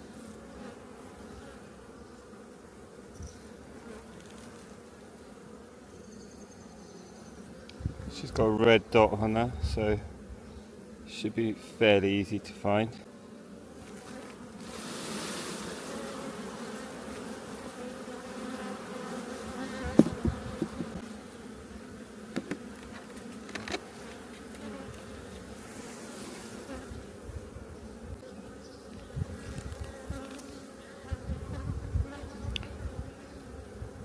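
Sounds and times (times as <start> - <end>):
honeybees buzzing: 0.0 - 34.0
hive frames clicking and knocking: 19.8 - 21.0, 22.3 - 25.1.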